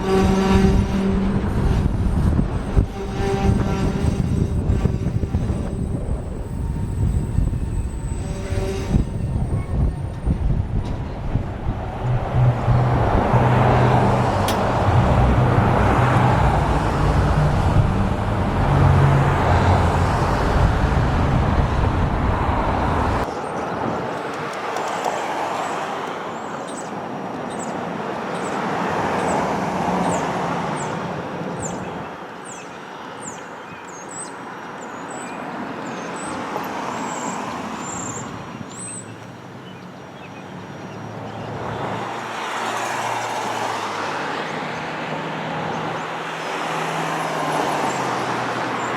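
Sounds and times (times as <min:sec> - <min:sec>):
heavy machinery engine rumble: 0:00.0 - 0:23.3
vehicle noise: 0:00.0 - 0:48.9.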